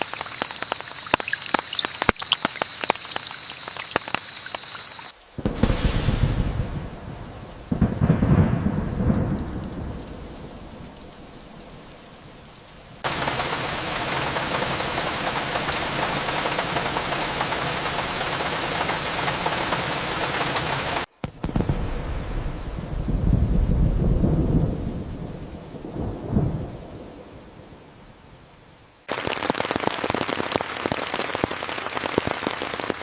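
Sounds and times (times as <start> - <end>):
heavy rain hissing: 0.0 - 21.1, 21.8 - 26.8, 29.0 - 33.0
thunder rolling: 5.4 - 12.4, 13.0 - 27.7.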